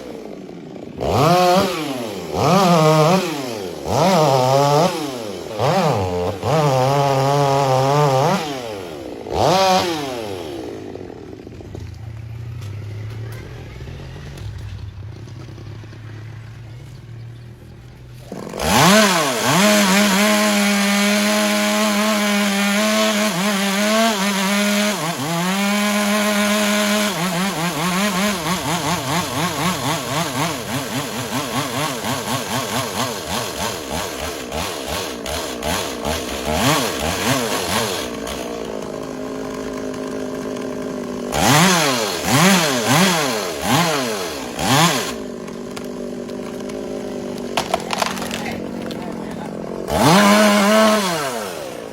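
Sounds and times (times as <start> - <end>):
chainsaw cutting wood: 0.0 - 17.3, 17.9 - 51.9.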